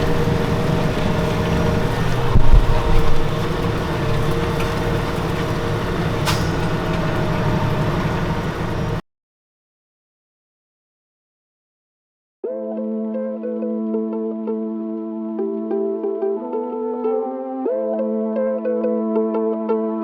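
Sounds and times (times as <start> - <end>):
tractor diesel engine under load: 0.0 - 9.0.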